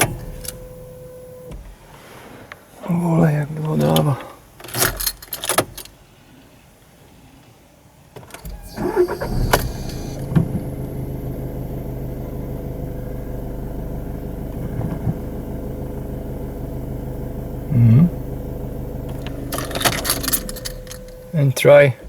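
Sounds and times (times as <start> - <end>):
diesel engine starting and idling: 0.0 - 2.3, 8.4 - 22.0.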